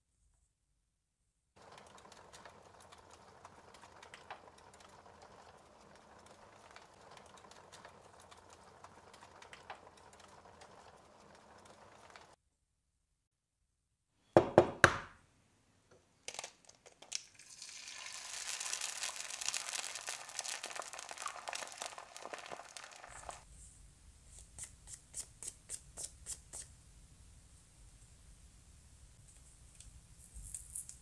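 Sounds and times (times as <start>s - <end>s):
egg cracking: 16.2s - 23.5s
egg sizzling: 17.1s - 23.5s.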